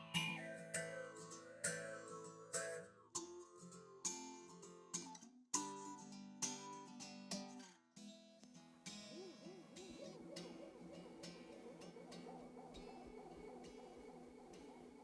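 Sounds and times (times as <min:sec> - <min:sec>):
acoustic guitar strumming: 0:00.0 - 0:07.6, 0:08.6 - 0:15.0.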